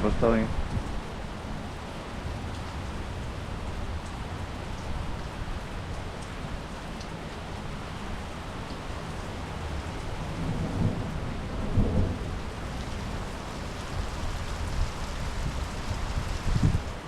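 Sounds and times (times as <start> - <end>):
steady rain falling: 0.2 - 17.0
thunder rumbling: 10.2 - 17.0.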